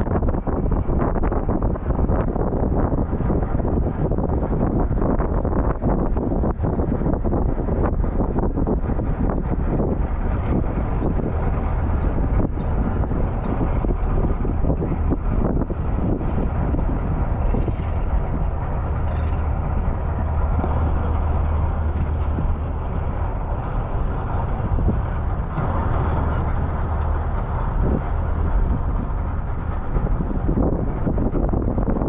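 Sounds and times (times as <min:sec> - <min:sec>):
vehicle engine rumble: 0:00.0 - 0:32.0.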